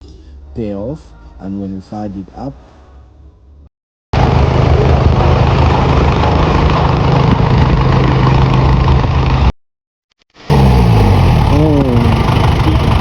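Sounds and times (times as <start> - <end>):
truck engine running loudly: 4.2 - 9.5, 10.5 - 13.0.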